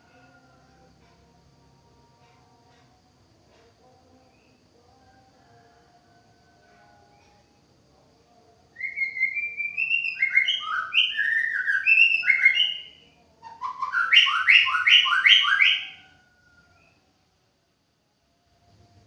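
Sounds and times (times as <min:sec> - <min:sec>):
bird singing whistled notes: 0:08.8 - 0:17.0.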